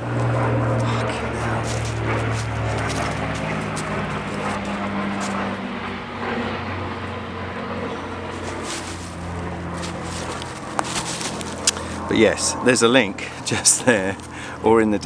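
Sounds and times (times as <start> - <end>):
faint clicks and rustles: 0.0 - 6.0, 7.7 - 12.1, 13.4 - 14.6
low engine drone: 0.0 - 15.0.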